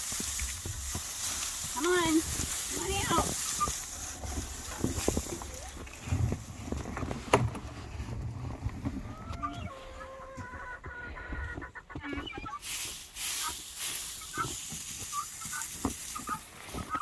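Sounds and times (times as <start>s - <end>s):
drawn-out hen calls: 0.0s - 6.0s, 8.7s - 17.0s
chickens clucking: 0.0s - 6.4s, 8.6s - 17.0s
loud rustling: 0.0s - 9.1s, 12.6s - 17.0s.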